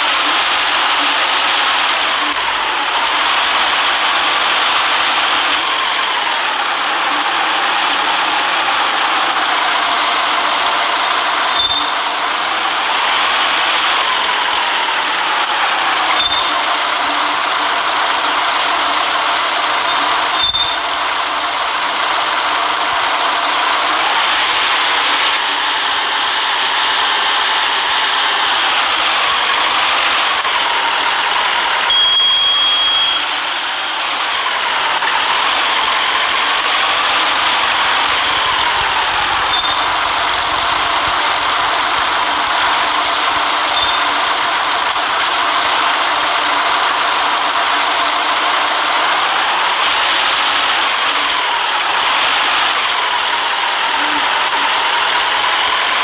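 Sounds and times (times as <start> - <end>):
bus engine: 0.0 - 56.0
road and tyre noise: 0.0 - 56.0
long high beep: 31.6 - 33.3, 39.5 - 45.8
sharp clicks with high beep: 31.6 - 33.3, 37.6 - 48.0.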